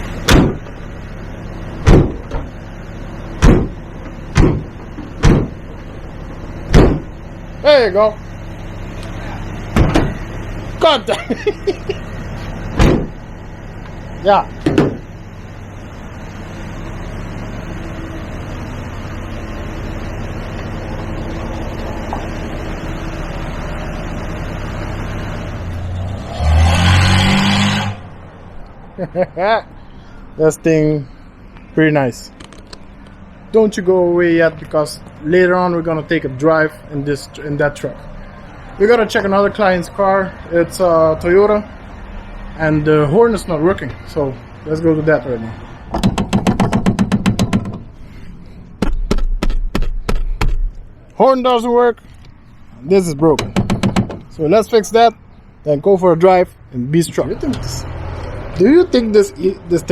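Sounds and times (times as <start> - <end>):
truck engine idling and revving: 0.0 - 59.9
sharp loud knocks: 0.3 - 0.7, 1.8 - 2.5, 3.4 - 5.6, 6.7 - 7.1, 9.8 - 10.2, 12.8 - 13.2, 14.6 - 15.0, 45.9 - 47.9, 48.8 - 50.8, 53.4 - 54.3.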